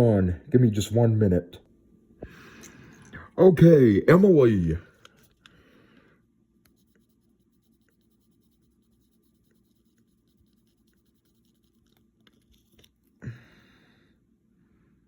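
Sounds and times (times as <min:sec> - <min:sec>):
pencil scratching on paper: 0:06.7 - 0:12.9.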